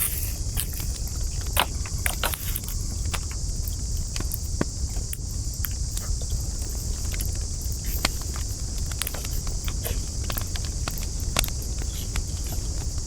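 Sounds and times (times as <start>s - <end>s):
campfire crackling: 0.0s - 13.0s
high hiss: 0.0s - 13.0s
fire pops and snaps: 7.0s - 13.0s.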